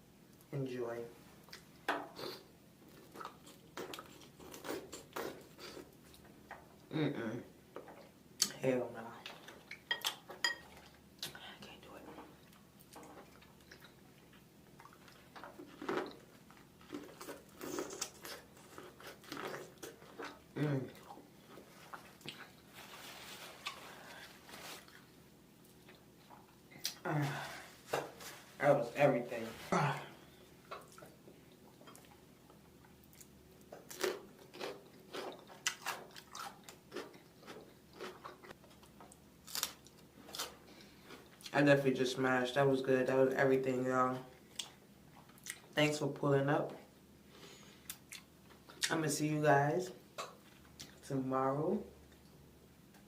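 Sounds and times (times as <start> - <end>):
chewing and biting seafood: 33.1 - 38.8.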